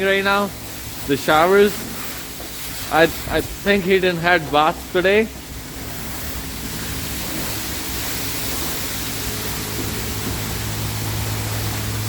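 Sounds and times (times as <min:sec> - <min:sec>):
high-pressure water spray hissing: 0:00.0 - 0:12.0
low hum: 0:03.1 - 0:12.0.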